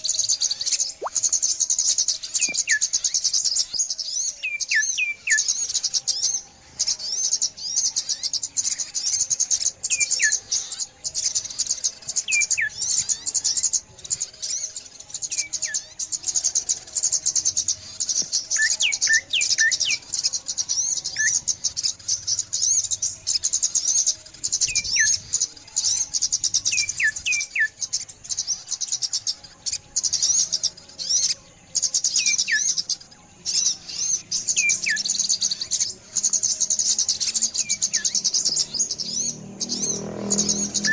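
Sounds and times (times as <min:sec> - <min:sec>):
songbirds twittering: 0:00.0 - 0:40.9.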